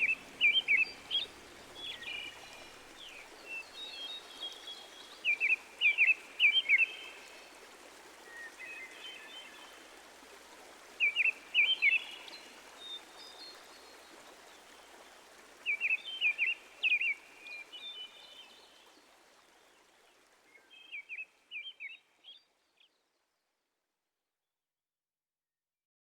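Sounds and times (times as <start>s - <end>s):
outdoor hiss: 0.0s - 3.8s
songbird singing: 0.0s - 4.6s.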